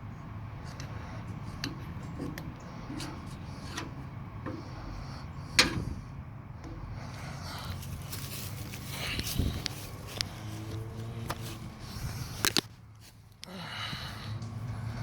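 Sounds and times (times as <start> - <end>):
low steady hum: 0.0 - 15.0
tools clicking and knocking: 1.5 - 6.0.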